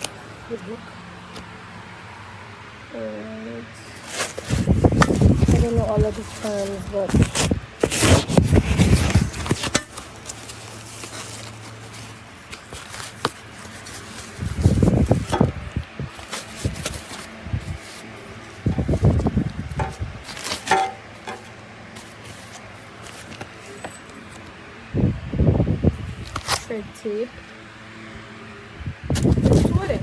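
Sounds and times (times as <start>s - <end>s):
packaging rustling and knocking: 3.9s - 24.1s.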